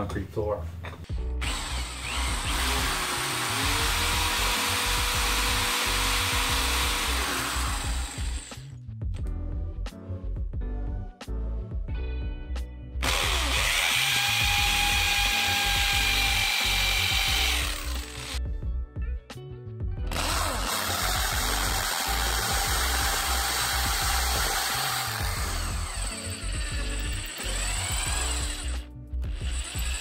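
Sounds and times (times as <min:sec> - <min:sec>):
hammer drill boring into concrete: 0:01.4 - 0:08.7, 0:13.0 - 0:18.4, 0:20.1 - 0:30.0.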